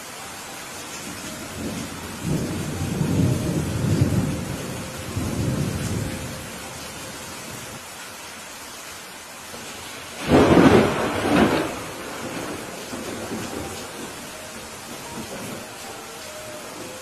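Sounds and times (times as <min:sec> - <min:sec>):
steady rain: 0:00.0 - 0:17.0
rolling thunder: 0:01.5 - 0:06.5, 0:10.2 - 0:15.8.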